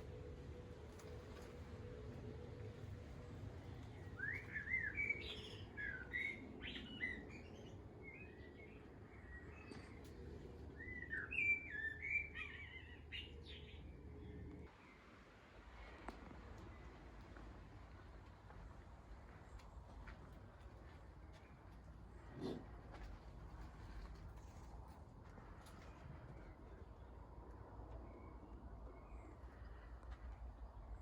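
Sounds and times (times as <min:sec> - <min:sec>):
low background rumble: 0:00.0 - 0:31.0
songbird twittering: 0:03.9 - 0:10.0, 0:10.8 - 0:13.9.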